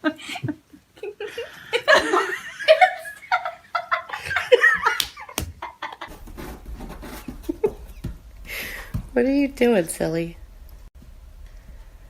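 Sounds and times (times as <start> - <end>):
people laughing and giggling: 0.0 - 6.1.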